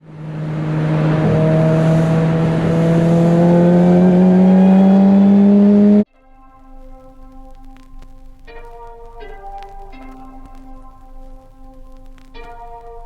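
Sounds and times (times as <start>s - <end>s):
vehicle engine accelerating: 0.0s - 6.0s.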